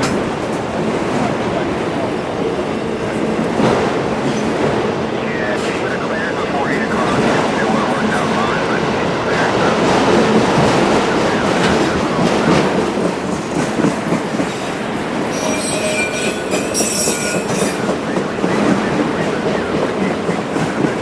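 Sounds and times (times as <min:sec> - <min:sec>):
train wheels clacking: 0:09.8 - 0:21.0
high-pitched wheel squeal: 0:15.3 - 0:17.9.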